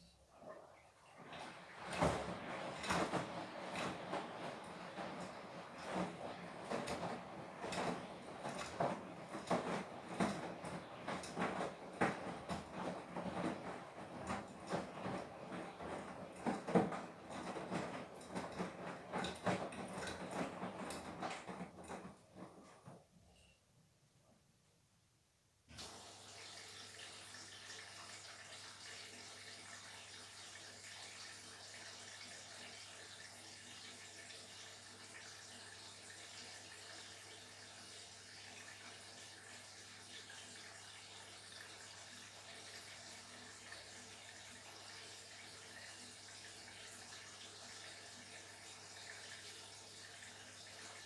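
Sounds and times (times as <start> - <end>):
washing machine filling with water: 0.0 - 23.5, 25.7 - 51.0
water rushing into machine: 1.1 - 22.7.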